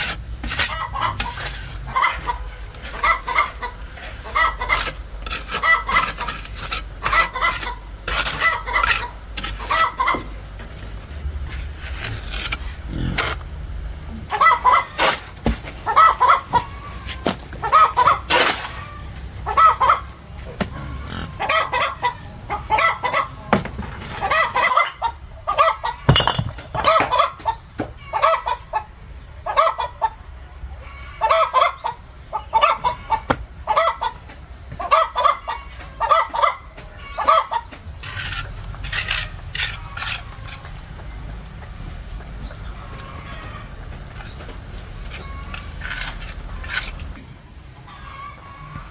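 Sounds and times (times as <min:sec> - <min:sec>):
chickens clucking: 0:00.6 - 0:06.2, 0:07.0 - 0:10.6, 0:14.1 - 0:38.4, 0:39.6 - 0:47.2, 0:47.8 - 0:48.9.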